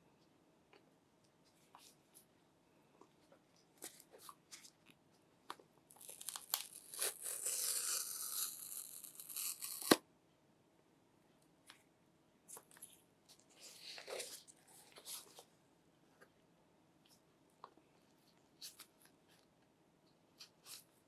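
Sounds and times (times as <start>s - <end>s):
paper strip tearing: 6.0s - 10.0s.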